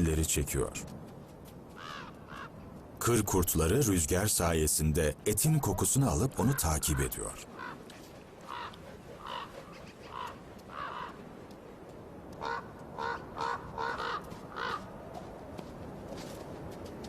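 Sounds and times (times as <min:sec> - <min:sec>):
crows cawing: 0:01.7 - 0:02.6, 0:06.3 - 0:11.3, 0:12.3 - 0:15.2.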